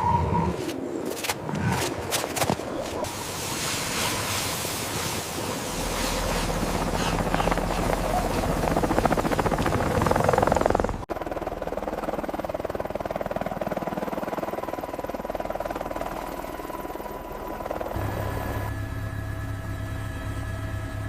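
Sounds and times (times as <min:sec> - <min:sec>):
helicopter rotor beating: 0:04.8 - 0:21.0.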